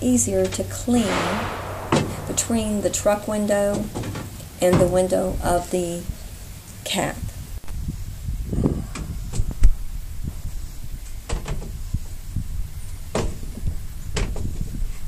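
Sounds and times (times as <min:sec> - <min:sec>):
low rumble: 0:00.9 - 0:03.9.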